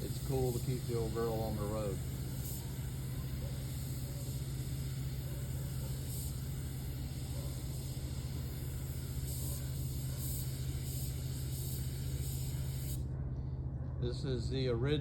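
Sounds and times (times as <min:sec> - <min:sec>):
paint spray gun hissing: 0:00.0 - 0:13.0
steady low hum: 0:00.0 - 0:15.0.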